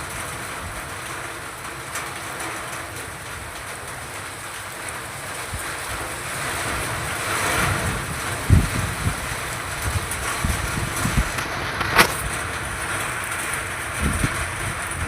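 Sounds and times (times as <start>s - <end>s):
wind buffeting microphone: 5.3s - 15.0s.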